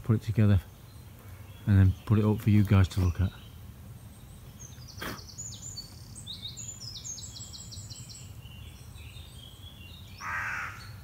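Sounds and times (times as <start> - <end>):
crow cawing: 10.2 - 11.0.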